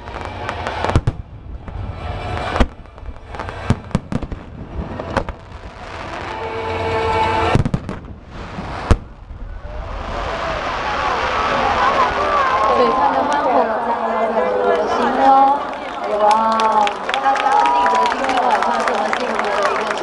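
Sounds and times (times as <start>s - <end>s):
fireworks bangs: 0.0s - 13.9s
fireworks crackling: 0.0s - 15.9s.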